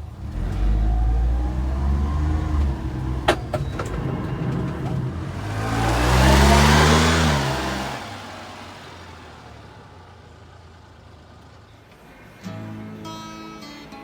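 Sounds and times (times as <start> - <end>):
small truck engine revving: 0.0 - 10.8.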